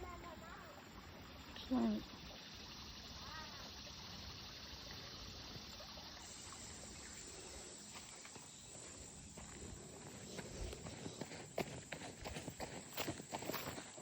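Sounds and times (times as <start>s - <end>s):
thin high steady tone: 0.0s - 8.0s
faint outdoor hiss: 0.0s - 14.0s
footsteps on a trail: 7.8s - 14.0s.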